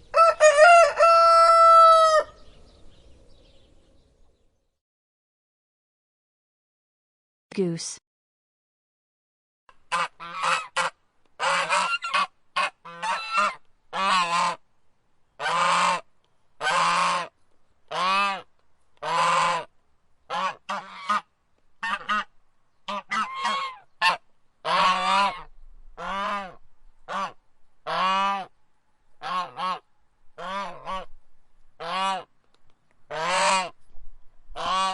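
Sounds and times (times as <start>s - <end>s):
goose honking: 9.8s - 14.6s, 15.4s - 17.3s, 17.9s - 19.7s, 20.3s - 22.3s, 22.9s - 28.5s, 29.2s - 29.8s, 30.4s - 31.1s, 31.8s - 32.3s, 33.1s - 33.7s, 34.6s - 34.9s.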